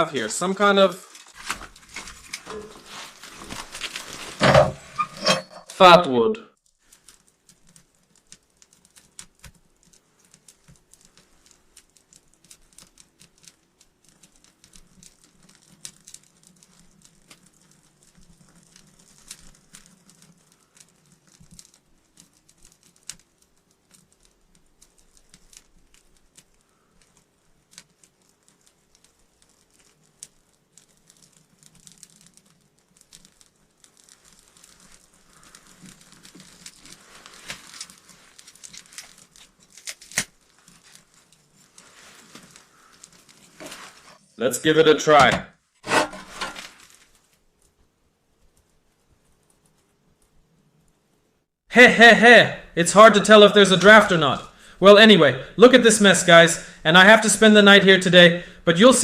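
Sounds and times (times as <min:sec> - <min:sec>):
kindling clicks and rustles: 0:00.1 - 0:05.8, 0:06.6 - 0:44.3, 0:45.1 - 0:50.4.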